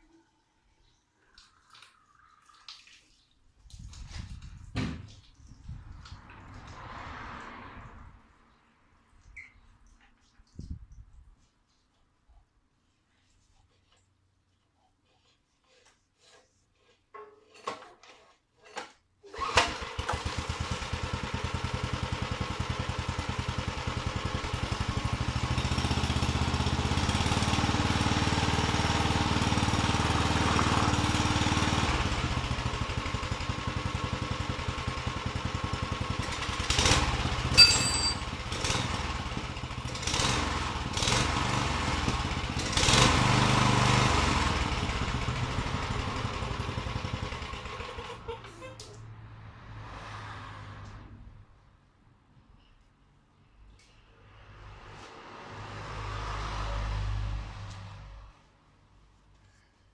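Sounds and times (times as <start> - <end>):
small pump engine running: 19.4 - 48.2
sharp knocks and clatters: 37.6 - 38.3.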